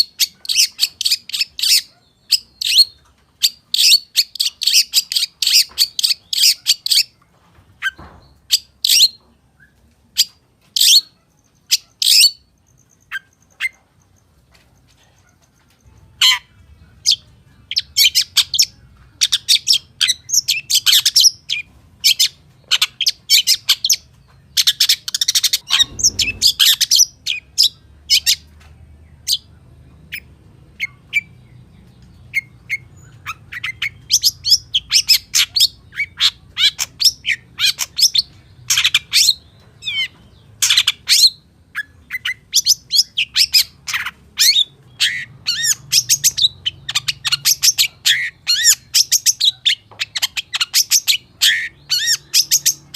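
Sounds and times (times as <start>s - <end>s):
bird singing fast varied song: 0.0s - 7.2s.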